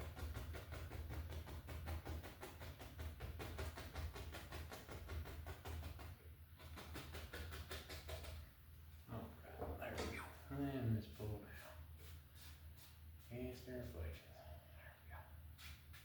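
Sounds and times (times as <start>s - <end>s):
brush tapping on canvas: 0.0s - 8.4s.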